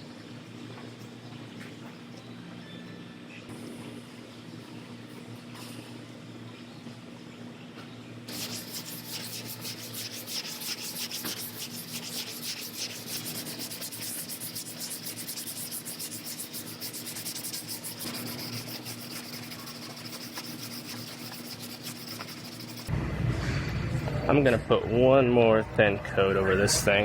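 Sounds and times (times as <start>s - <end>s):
sanding body filler: 8.3s - 22.9s.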